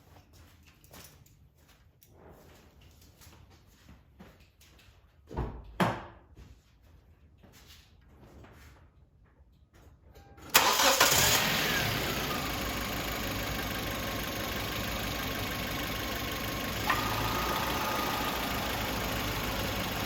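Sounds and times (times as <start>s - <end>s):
car engine starting and idling: 10.5s - 20.0s.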